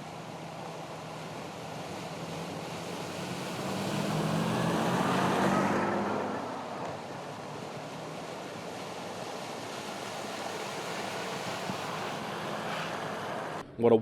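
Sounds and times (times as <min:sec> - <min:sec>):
vehicle passing by: 0:02.7 - 0:08.5.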